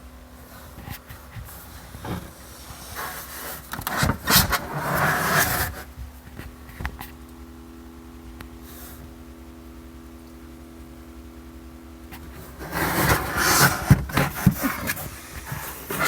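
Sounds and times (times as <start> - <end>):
low electrical hum: 0.0 - 16.0
rustling and knocks: 12.2 - 16.0.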